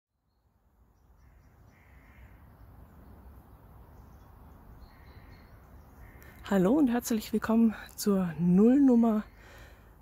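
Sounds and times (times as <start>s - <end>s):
bird calling: 1.2s - 2.7s, 3.9s - 7.2s.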